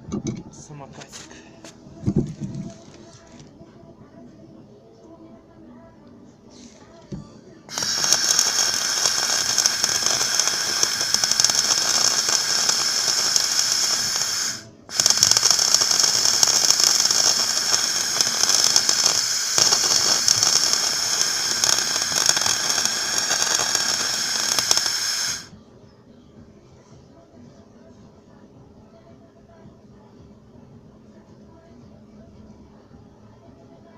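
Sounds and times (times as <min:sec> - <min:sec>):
arc welding crackling: 0:07.7 - 0:25.5.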